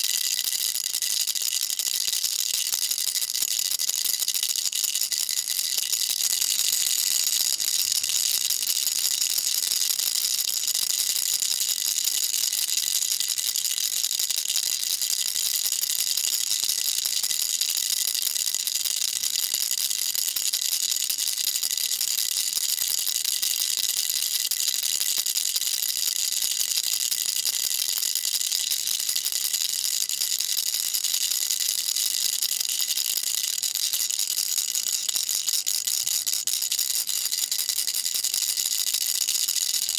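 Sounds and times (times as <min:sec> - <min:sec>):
baby rattle shaking: 0:02.0 - 0:14.0.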